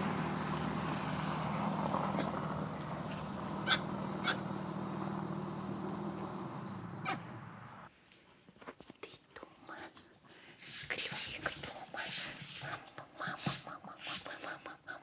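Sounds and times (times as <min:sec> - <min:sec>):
vehicle engine running: 0:00.0 - 0:07.9.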